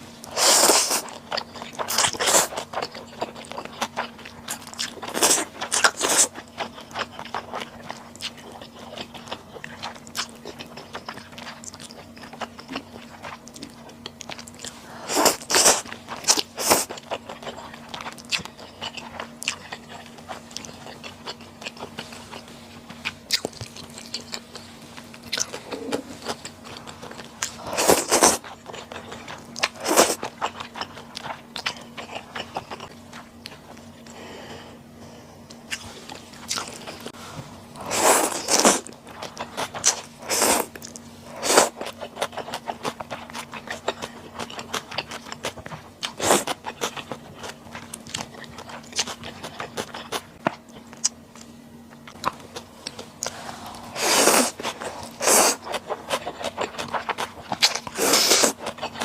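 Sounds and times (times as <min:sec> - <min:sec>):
chewing with wet mouth clicks: 0:00.2 - 0:34.2, 0:38.4 - 0:53.4, 0:54.3 - 0:59.0
slurping: 0:53.2 - 0:59.0.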